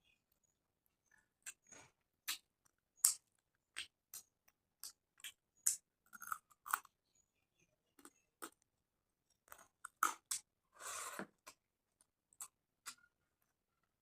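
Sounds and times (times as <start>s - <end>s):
person chewing food: 1.1s - 7.0s, 9.3s - 13.5s.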